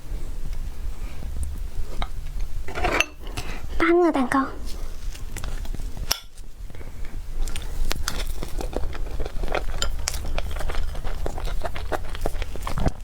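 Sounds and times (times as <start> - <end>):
steady low hum: 0.0 - 13.0
mouth chewing cake: 7.0 - 13.0.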